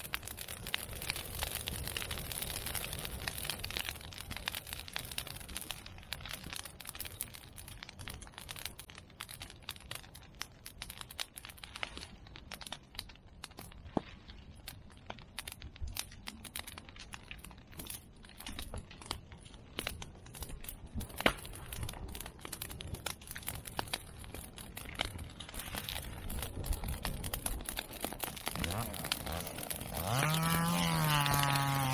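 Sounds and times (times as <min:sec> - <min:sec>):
bamboo popping in fire: 0:00.0 - 0:31.9
fire crackling: 0:00.0 - 0:31.9.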